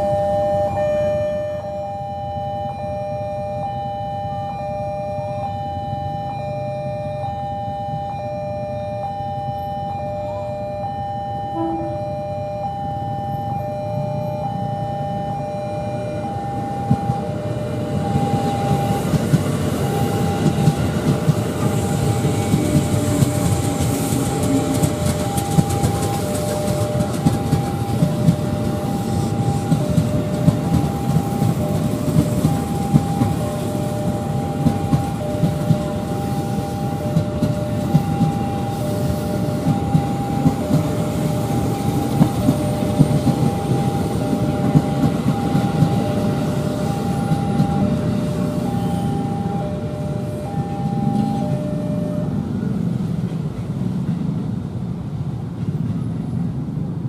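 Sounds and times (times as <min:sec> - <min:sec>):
two-tone crossing warning alarm: 0:00.0 - 0:53.4
train wheels clacking over rail joints: 0:18.2 - 0:48.8.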